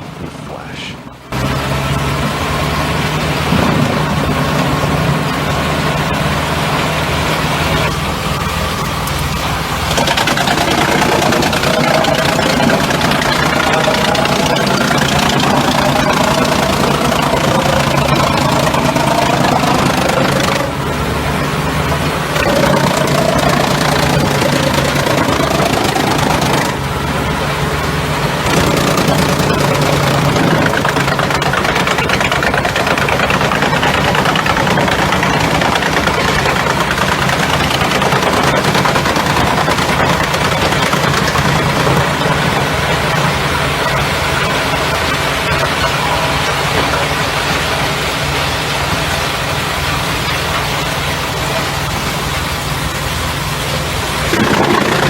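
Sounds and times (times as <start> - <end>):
diesel engine drone: 0.0 - 55.0
wood chipper shredding wood: 0.0 - 55.0.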